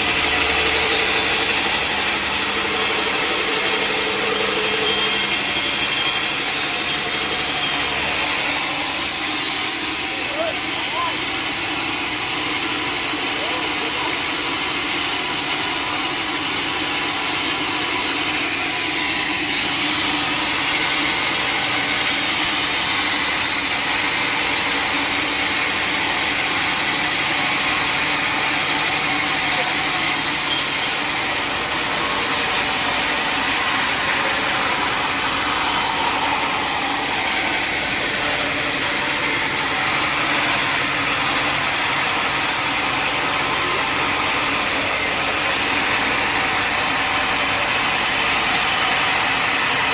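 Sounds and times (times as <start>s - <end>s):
mill engine running: 0.0s - 49.9s
saw blade cutting through log: 0.0s - 49.9s.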